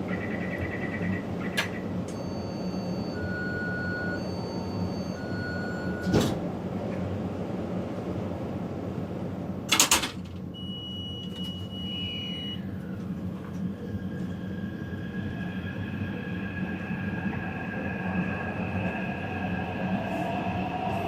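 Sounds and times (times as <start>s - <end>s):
train rumble: 0.0s - 21.0s
traction motors whining: 12.4s - 21.0s.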